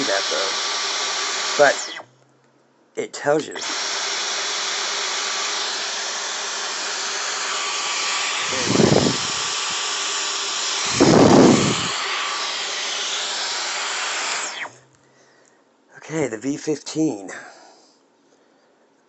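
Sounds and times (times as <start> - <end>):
stick vacuum running: 0.0 - 2.0, 3.3 - 14.8
vacuum airflow whooshes: 6.9 - 9.9, 10.7 - 14.6.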